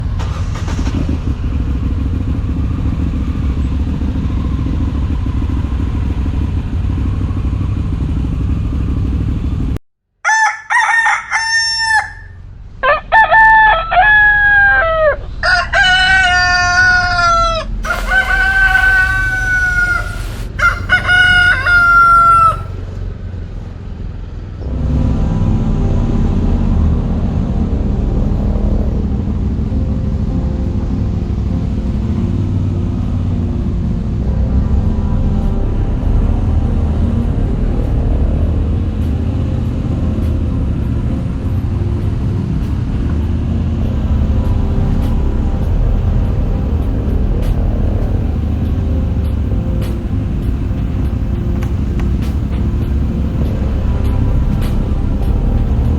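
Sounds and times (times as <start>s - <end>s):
motorcycle engine rumble: 0.0s - 9.8s, 15.2s - 55.9s
roosters crowing: 10.2s - 22.8s.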